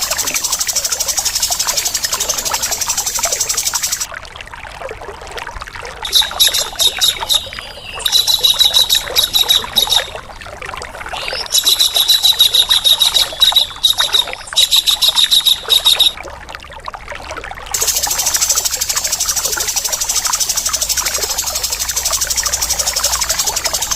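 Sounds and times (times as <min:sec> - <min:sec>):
harsh rattling bird calls: 0:00.0 - 0:04.1, 0:06.1 - 0:10.2, 0:11.2 - 0:16.2, 0:17.8 - 0:23.9
trickling water: 0:00.0 - 0:23.9.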